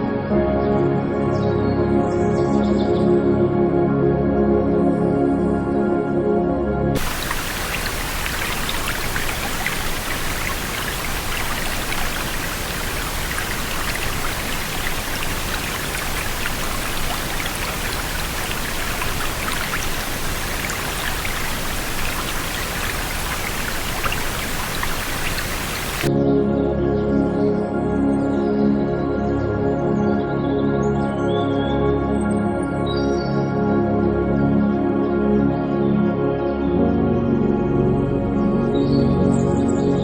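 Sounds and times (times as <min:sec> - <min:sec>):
hiss of falling water: 0:07.0 - 0:26.1
water droplet ticks: 0:07.0 - 0:26.1.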